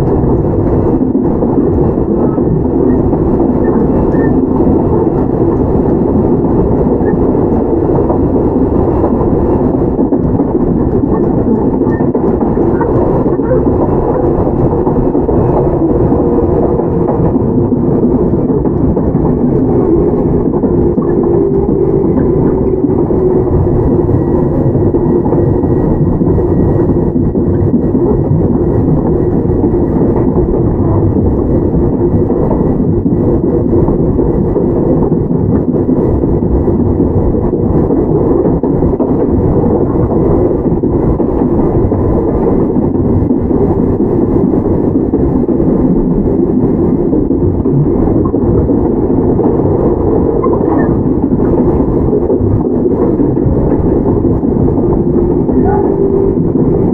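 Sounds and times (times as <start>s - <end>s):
electric train wheels rumbling: 0.0s - 56.9s
faint high tone: 55.6s - 56.4s.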